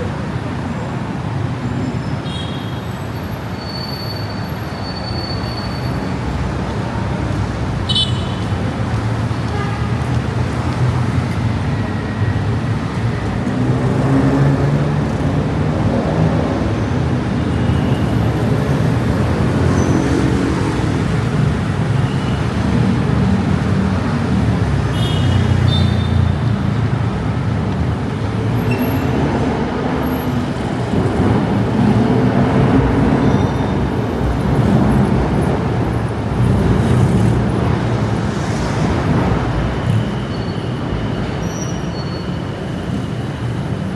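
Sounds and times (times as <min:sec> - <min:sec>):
heavy road traffic: 0:00.0 - 0:43.9.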